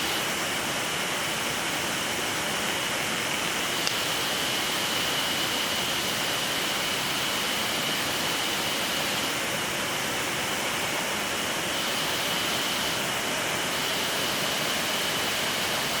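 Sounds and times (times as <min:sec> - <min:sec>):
mountain stream rushing: 0:00.0 - 0:16.0.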